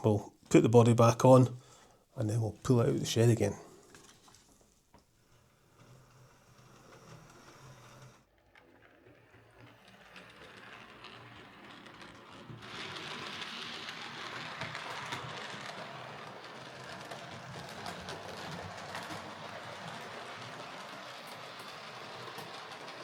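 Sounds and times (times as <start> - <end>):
model train motor whirring: 5.3 - 23.0
wheels clicking over rails: 6.0 - 23.0.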